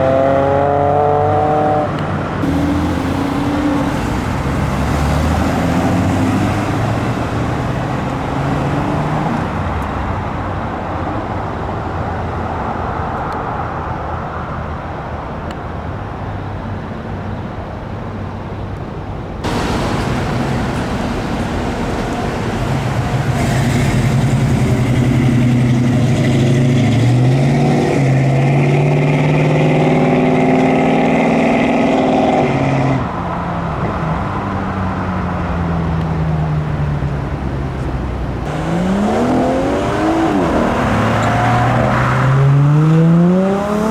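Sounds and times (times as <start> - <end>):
car engine accelerating: 0.0 - 10.6, 19.4 - 43.9
car engines running: 0.0 - 43.9.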